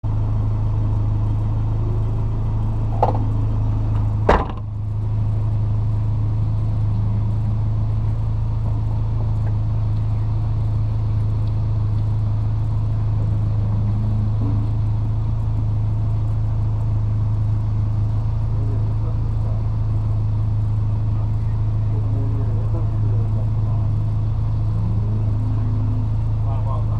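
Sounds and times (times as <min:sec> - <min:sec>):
car engine running: 0:00.0 - 0:26.9
knocks: 0:03.0 - 0:03.3, 0:04.2 - 0:04.7.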